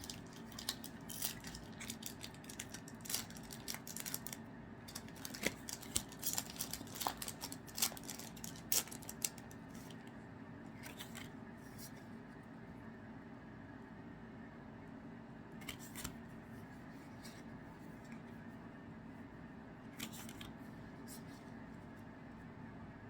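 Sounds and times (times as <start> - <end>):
cards and foil wrappers rustling: 0.0 - 10.0.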